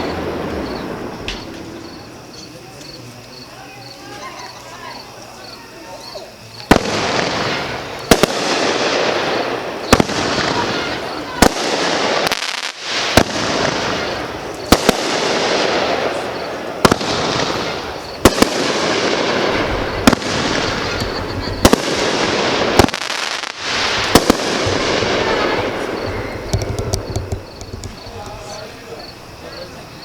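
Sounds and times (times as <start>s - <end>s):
firework bangs: 0.0s - 3.5s, 6.5s - 29.2s.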